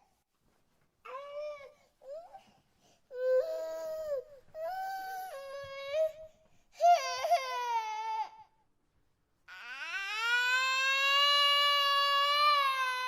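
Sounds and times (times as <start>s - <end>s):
infant crying: 6.8s - 8.5s, 9.5s - 13.0s.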